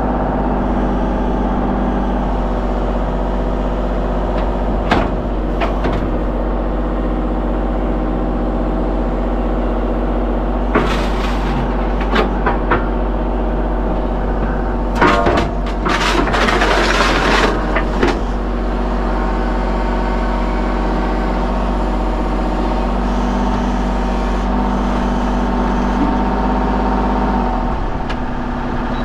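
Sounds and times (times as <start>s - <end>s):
excavator diesel engine running: 0.0s - 29.0s
sharp clunks and knocks: 4.3s - 6.3s, 10.7s - 13.2s, 14.3s - 18.4s.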